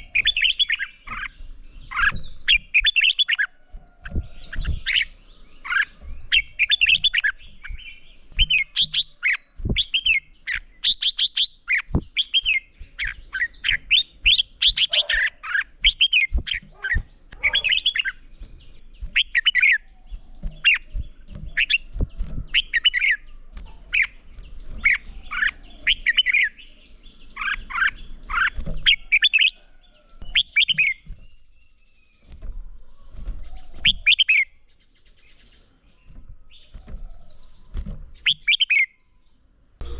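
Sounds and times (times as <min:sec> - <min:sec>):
bird singing warbling whistles: 0:00.0 - 0:23.3, 0:38.2 - 0:39.4
soft low knocks: 0:15.7 - 0:26.0.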